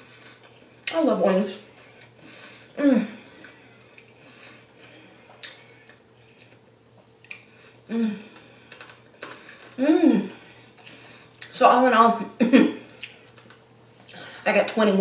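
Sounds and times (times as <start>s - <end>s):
crunchy chewing: 3.4s - 11.5s
person humming: 7.9s - 8.4s, 9.8s - 10.4s.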